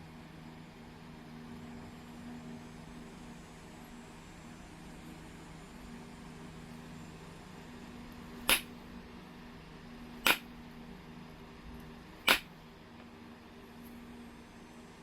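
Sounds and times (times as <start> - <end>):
knapping tool striking stone: 8.4 - 8.7, 10.2 - 10.5, 12.2 - 12.5.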